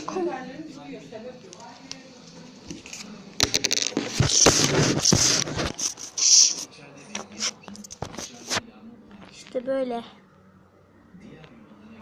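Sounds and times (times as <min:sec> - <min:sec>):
rustling and scraping handling noise: 0:01.7 - 0:09.6.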